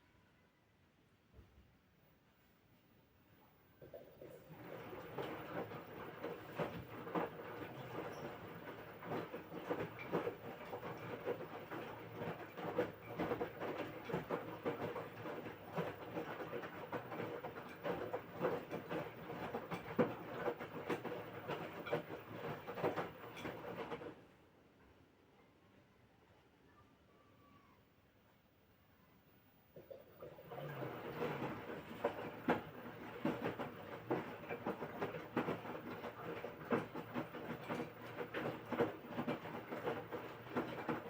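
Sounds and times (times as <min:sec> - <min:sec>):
laundry knocking and sloshing: 0:03.8 - 0:24.2, 0:29.8 - 0:41.0
washing machine motor hum: 0:03.8 - 0:24.3, 0:29.7 - 0:41.0.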